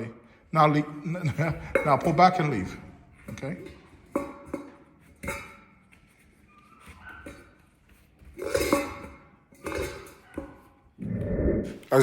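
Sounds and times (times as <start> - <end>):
metal bowl clattering: 1.3 - 6.4, 7.2 - 10.8.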